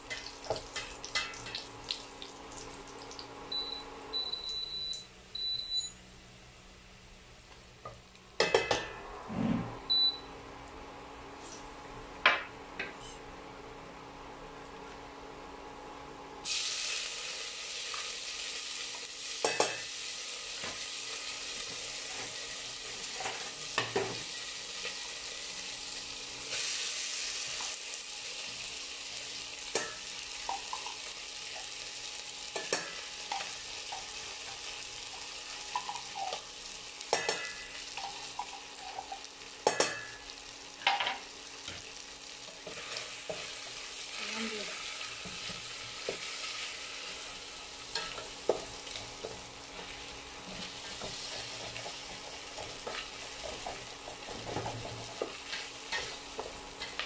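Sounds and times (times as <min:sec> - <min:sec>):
meat sizzling in hot oil: 0:00.0 - 0:03.8, 0:16.4 - 0:57.0.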